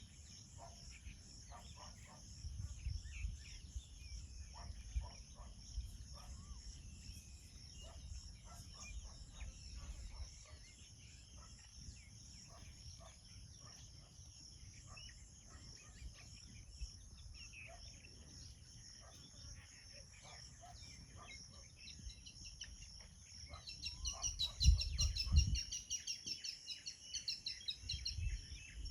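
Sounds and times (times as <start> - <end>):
bird chirps and calls: 0.0 - 28.9
pulsing insect chorus: 0.0 - 28.9.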